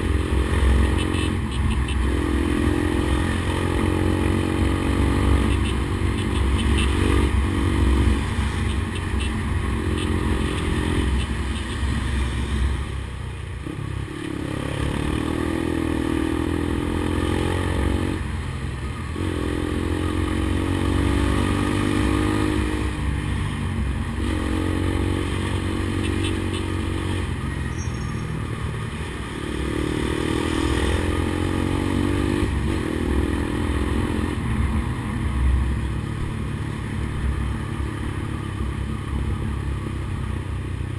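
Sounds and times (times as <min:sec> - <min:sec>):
motorcycle engine revving: 0:00.0 - 0:12.8, 0:13.6 - 0:39.9.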